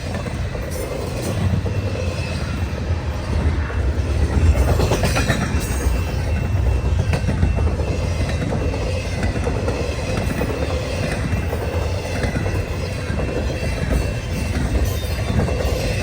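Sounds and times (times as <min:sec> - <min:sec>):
train wheels rumbling on rail: 0:00.0 - 0:16.0
clacks over rail joints: 0:04.1 - 0:16.0.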